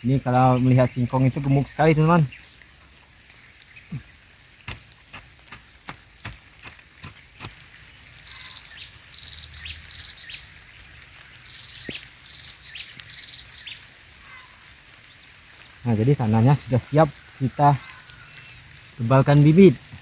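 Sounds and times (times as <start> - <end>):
bird chirping: 7.0 - 20.0.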